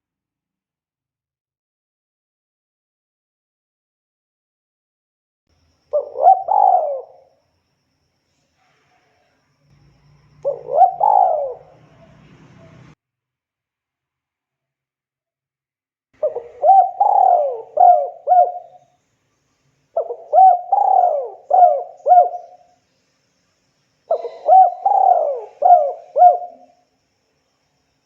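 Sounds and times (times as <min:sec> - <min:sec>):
dove cooing: 0:05.9 - 0:07.3, 0:10.4 - 0:13.0, 0:16.2 - 0:18.8, 0:20.0 - 0:22.7, 0:24.1 - 0:26.8.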